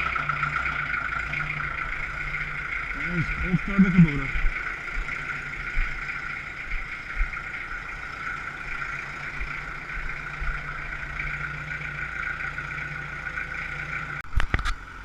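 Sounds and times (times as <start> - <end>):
high whine: 0.0 - 14.5
diesel tractor engine idling: 0.0 - 15.0
dull low knocks: 4.3 - 8.1.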